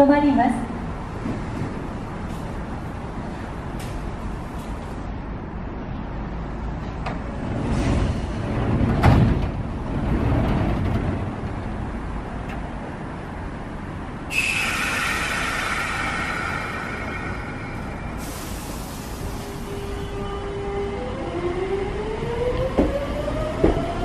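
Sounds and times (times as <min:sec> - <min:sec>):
compressed air hissing: 0:14.3 - 0:19.7.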